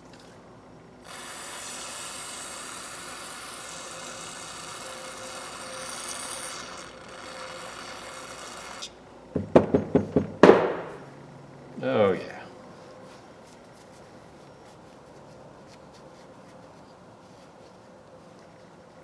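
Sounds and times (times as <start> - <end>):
sharp knock: 9.4 - 11.0.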